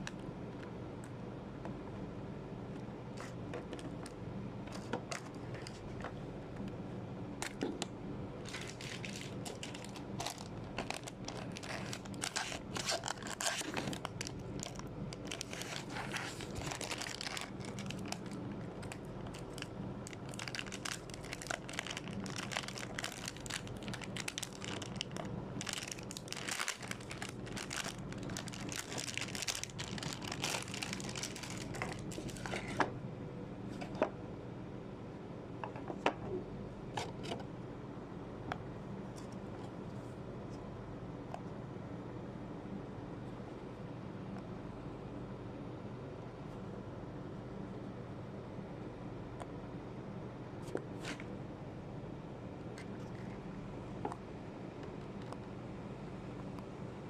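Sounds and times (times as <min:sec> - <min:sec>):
low hum: 0:00.0 - 0:57.0
packaging crinkling: 0:08.4 - 0:32.8.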